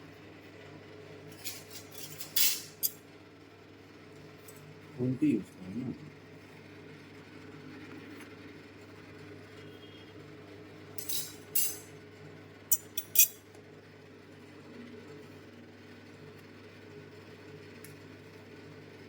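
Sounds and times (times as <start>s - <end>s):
kitchenware clinking: 1.4s - 3.0s, 11.0s - 11.9s, 12.7s - 13.4s.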